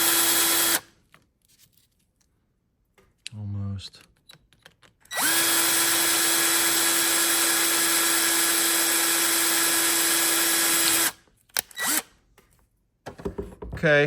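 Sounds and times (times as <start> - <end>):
electric drill whining: 0.0 - 0.8, 5.1 - 12.1.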